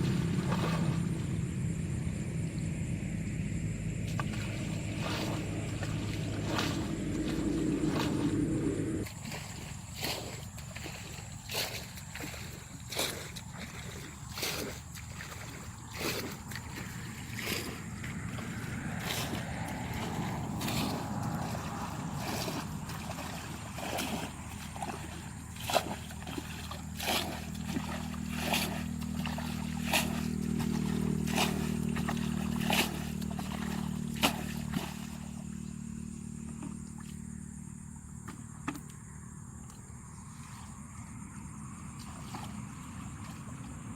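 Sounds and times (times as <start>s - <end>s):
low steady hum: 0.0s - 9.7s, 16.5s - 43.9s
water sloshing and gurgling: 0.0s - 43.9s.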